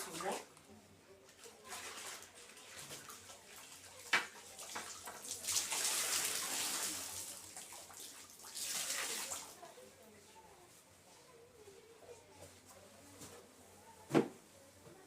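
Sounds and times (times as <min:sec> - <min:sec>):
mop water splashing and pouring: 0:01.3 - 0:09.6.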